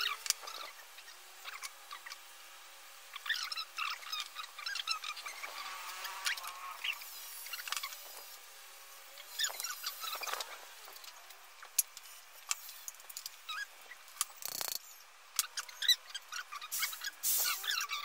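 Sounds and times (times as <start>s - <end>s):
small birds chirping: 0.0s - 2.3s, 3.1s - 8.2s, 9.2s - 10.5s, 13.4s - 18.0s.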